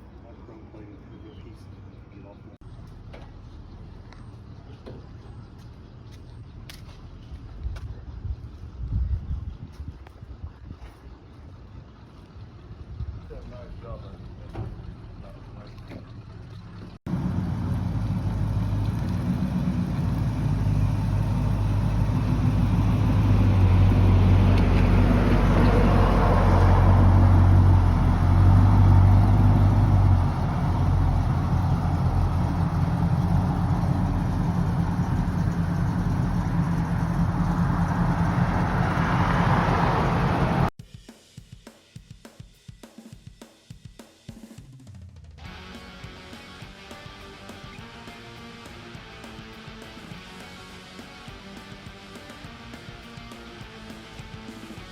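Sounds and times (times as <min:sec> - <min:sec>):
car engine rumbling: 0:00.8 - 0:09.7, 0:10.3 - 0:40.8.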